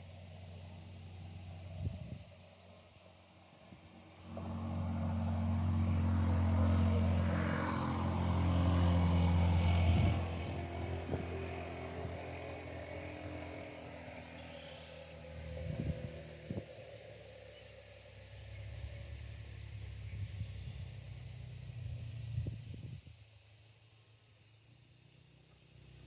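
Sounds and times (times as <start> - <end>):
passing vehicle engine hum: 0.0 - 26.0.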